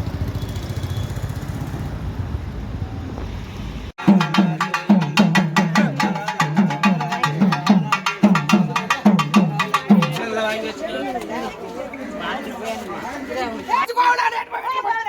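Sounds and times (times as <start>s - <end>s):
deep drum beats: 4.0s - 10.2s
sharp clattering percussion: 4.0s - 10.2s.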